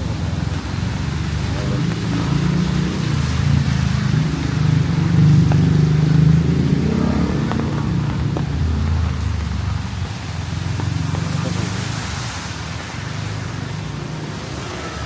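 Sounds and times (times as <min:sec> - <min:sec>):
vehicle engine at low revs: 0:00.0 - 0:14.8.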